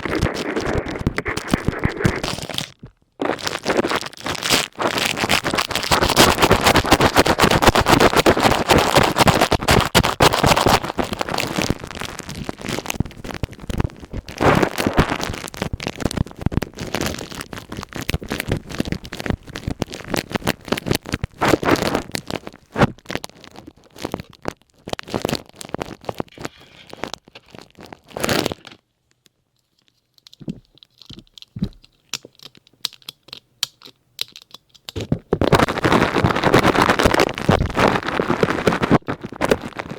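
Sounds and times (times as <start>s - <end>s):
ear pick scraping plastic cap: 0.0s - 11.8s, 29.8s - 39.9s.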